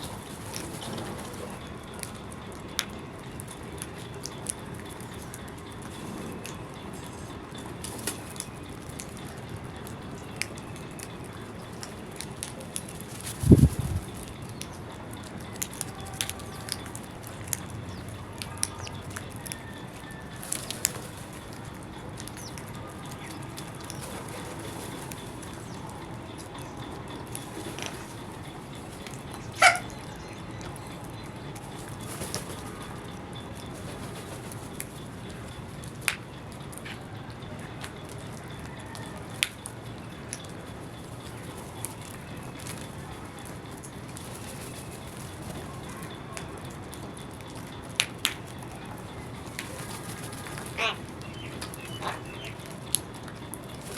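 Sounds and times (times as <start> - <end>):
birds pecking taps: 14.2 - 26.7
bird squawk: 29.6 - 30.0, 50.6 - 52.6.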